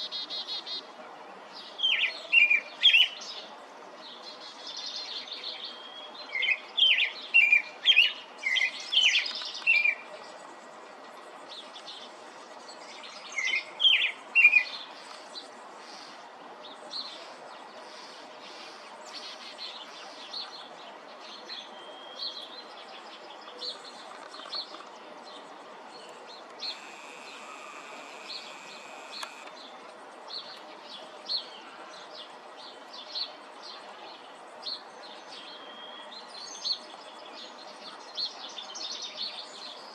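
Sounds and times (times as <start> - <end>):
steady background hiss: 0.0 - 39.9
robin singing: 1.6 - 3.4, 4.7 - 10.1, 12.7 - 15.2, 21.3 - 29.7.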